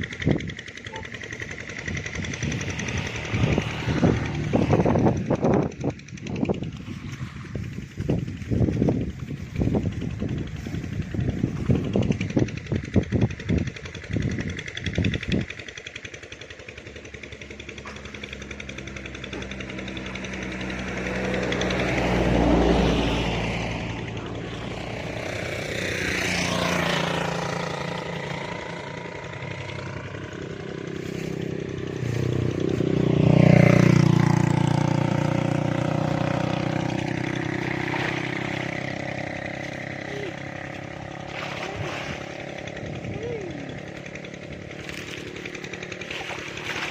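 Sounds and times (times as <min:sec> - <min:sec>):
passing vehicle engines: 0:00.0 - 0:46.9
rapid knocks or splashes: 0:41.2 - 0:42.7, 0:44.7 - 0:46.9.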